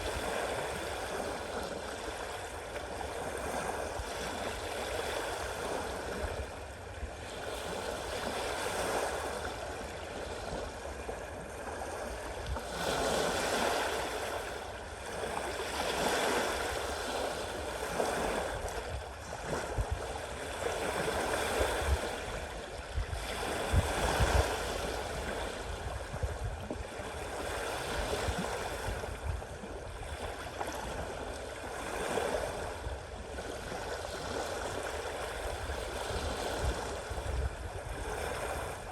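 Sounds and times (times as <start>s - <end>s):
sea waves washing in: 12.0s - 38.9s.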